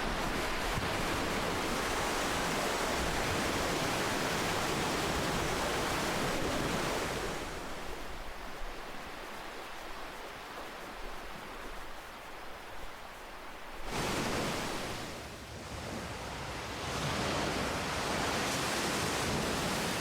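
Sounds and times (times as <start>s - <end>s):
ocean surf washing: 0.0s - 20.0s.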